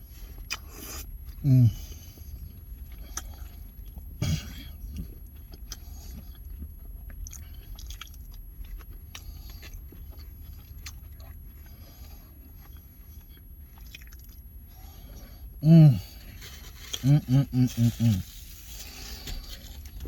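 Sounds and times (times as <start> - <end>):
low steady hum: 0.0 - 20.0
person chewing food: 0.0 - 20.0.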